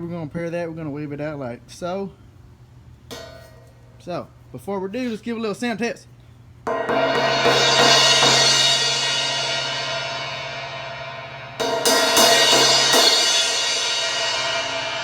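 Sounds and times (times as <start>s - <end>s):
crash cymbal struck and ringing: 6.7s - 15.0s.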